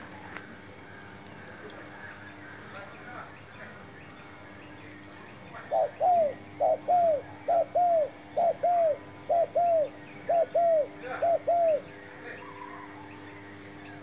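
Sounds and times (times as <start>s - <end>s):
dove cooing: 5.6s - 13.0s.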